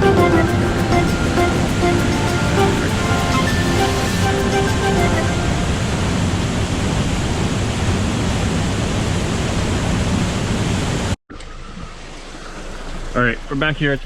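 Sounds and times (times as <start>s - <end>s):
background music: 0.0s - 6.1s
waterfall rushing: 0.0s - 11.1s.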